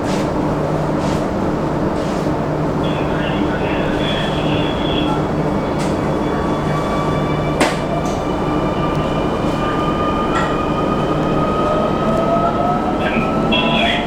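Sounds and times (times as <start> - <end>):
train rumble: 0.0 - 14.0
train motor whine: 2.9 - 14.0.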